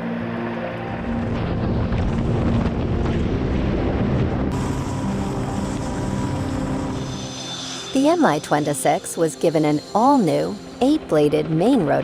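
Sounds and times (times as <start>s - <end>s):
helicopter rotor and turbine rumble: 0.0s - 12.0s
wind buffeting microphone: 1.2s - 7.0s.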